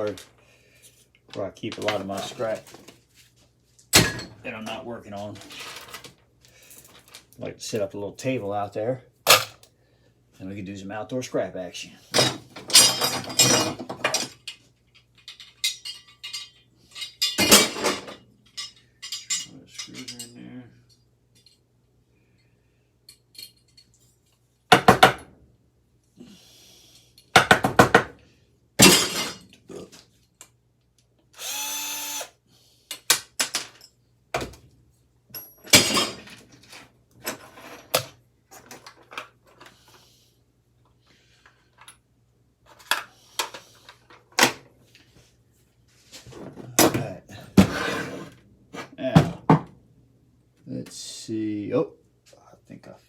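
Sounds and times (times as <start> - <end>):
metal fan parts clattering: 12.1 - 21.6, 35.3 - 39.7.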